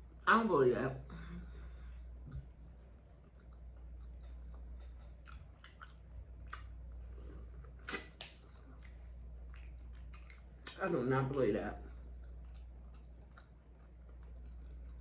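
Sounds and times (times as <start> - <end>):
chewing and biting shrimp: 3.3 - 10.8.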